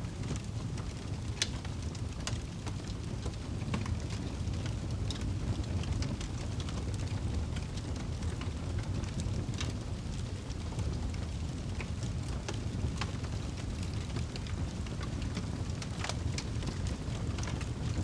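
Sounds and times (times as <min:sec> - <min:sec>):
fire crackling and popping: 0:00.0 - 0:18.0
fire rumbling: 0:00.0 - 0:18.0.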